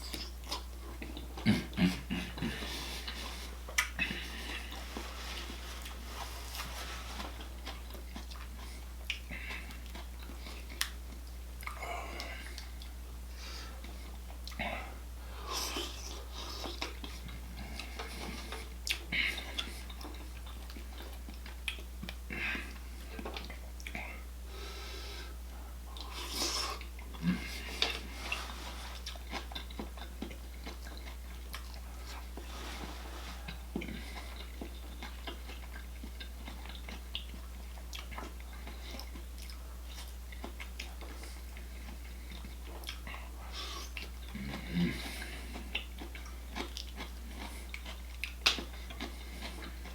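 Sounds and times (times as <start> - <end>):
person chewing: 0.0 - 49.9
steady low hum: 0.0 - 49.9
person breathing: 2.2 - 5.9, 24.5 - 25.8
lip smacks: 3.7 - 4.2.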